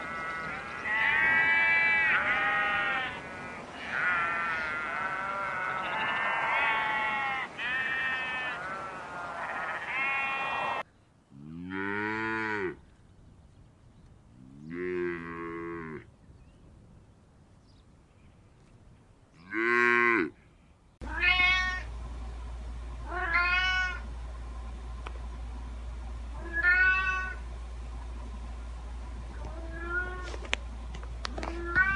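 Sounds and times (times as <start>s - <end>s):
high bleating calls: 0.0s - 10.8s, 21.0s - 21.9s, 23.1s - 24.1s, 26.4s - 27.4s, 29.4s - 30.4s
cow mooing: 0.0s - 12.8s, 14.4s - 16.1s, 19.4s - 20.4s
steady low hum: 0.0s - 31.9s
cat meowing: 21.1s - 21.8s, 23.1s - 24.0s, 26.4s - 27.4s, 29.5s - 30.3s, 31.5s - 31.9s.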